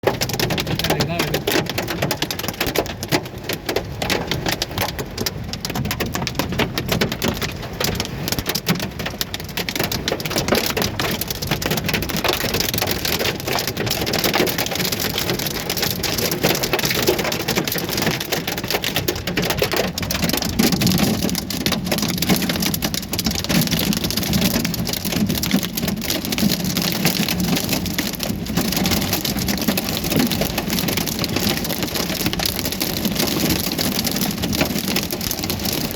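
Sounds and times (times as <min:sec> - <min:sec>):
hail and heavy rain pelting: 0:00.0 - 0:35.9.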